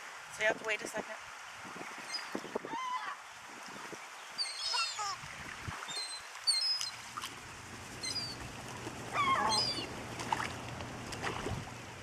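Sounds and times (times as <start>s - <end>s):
birds chirping: 4.1s - 5.2s, 7.9s - 10.1s
wavering bird call: 4.4s - 5.2s, 8.0s - 8.4s, 9.1s - 9.9s
low steady hum: 7.0s - 12.0s.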